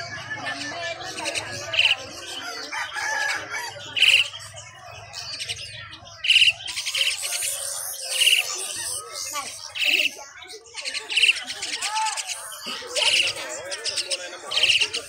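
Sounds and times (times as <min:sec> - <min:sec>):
soft chirps and twitters: 0:03.9 - 0:15.0
shrill nestling bird calls: 0:05.1 - 0:15.0.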